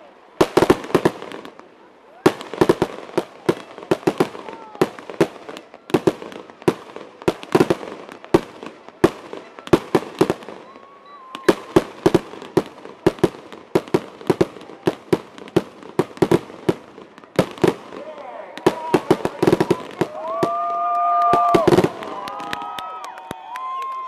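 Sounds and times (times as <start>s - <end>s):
fireworks bangs and pops: 0.4s - 24.0s.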